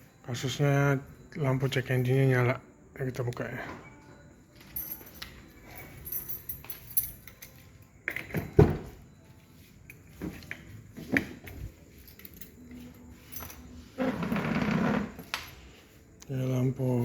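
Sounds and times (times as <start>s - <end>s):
keys jangling: 4.5s - 8.6s, 11.4s - 13.8s.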